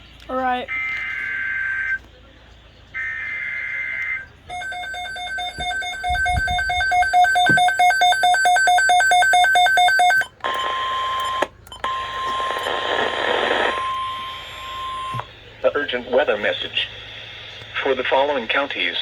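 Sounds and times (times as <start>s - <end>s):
rapid alarm beeps: 3.0s - 15.3s
warning alarm tone: 3.0s - 15.3s
radio static: 12.4s - 19.0s.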